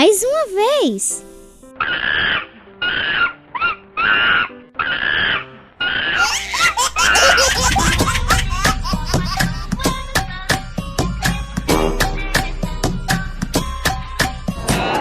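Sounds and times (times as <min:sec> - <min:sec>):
upbeat children's music: 0:06.2 - 0:15.0.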